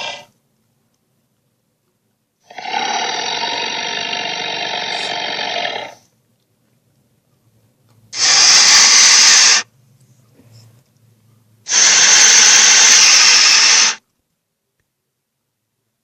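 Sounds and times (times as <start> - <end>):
monster hissing roars: 0.0 - 0.3, 2.5 - 6.0, 8.2 - 9.6, 11.7 - 14.0.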